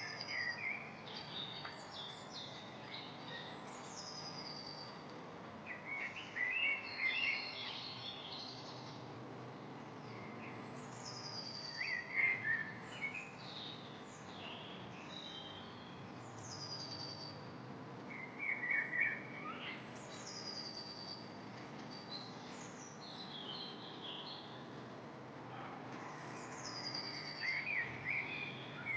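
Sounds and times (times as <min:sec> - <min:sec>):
lower chattering bird calls: 0:25.5 - 0:28.9.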